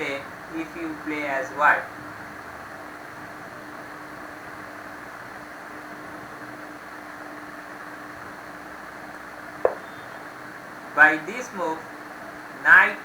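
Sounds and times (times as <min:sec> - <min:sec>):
background hiss: 0:00.0 - 0:02.5
faint constant hum: 0:00.0 - 0:13.0.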